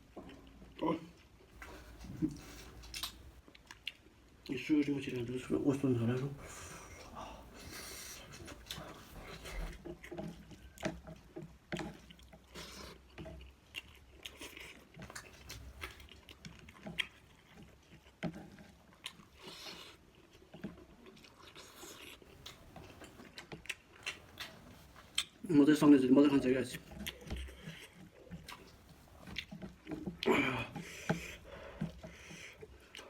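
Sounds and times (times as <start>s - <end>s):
person chewing food: 0.0s - 4.6s, 5.9s - 25.5s, 26.3s - 33.0s
food crunching: 0.0s - 33.0s.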